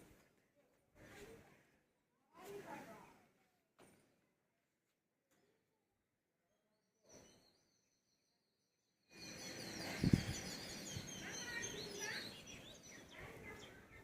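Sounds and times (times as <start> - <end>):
outdoor background noise: 0.0 - 14.0
birds chirping: 9.1 - 14.0.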